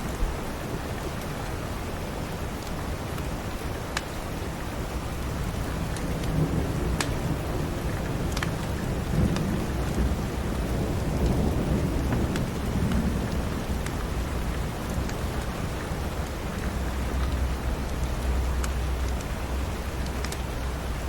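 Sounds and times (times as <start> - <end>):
heavy rain: 0.0 - 21.0
thunder rumbling: 5.4 - 17.8.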